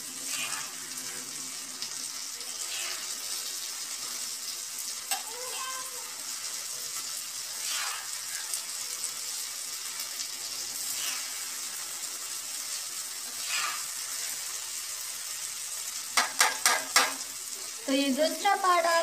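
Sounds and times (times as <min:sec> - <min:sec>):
vegetables sizzling on griddle: 0:00.0 - 0:19.0
spatula scraping: 0:00.2 - 0:01.3, 0:02.6 - 0:03.3, 0:07.5 - 0:08.6, 0:10.8 - 0:11.6, 0:13.2 - 0:14.4
spatula tapping on pan: 0:16.2 - 0:17.3.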